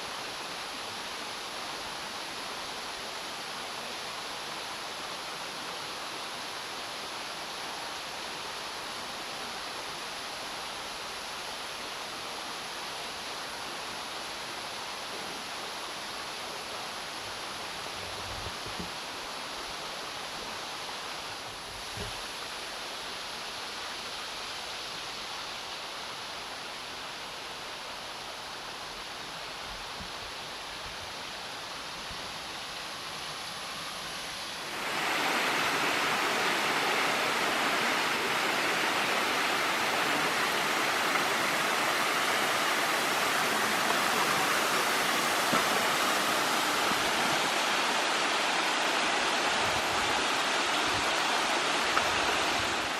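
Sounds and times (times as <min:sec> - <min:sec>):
waterfall roaring: 0:31.6 - 0:52.9.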